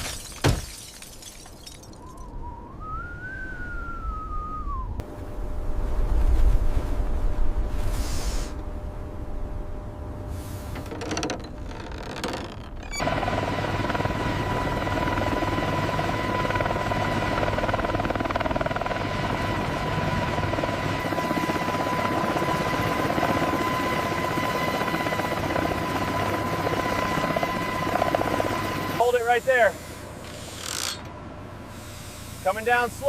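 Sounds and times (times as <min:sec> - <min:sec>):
helicopter running: 0:10.8 - 0:31.6.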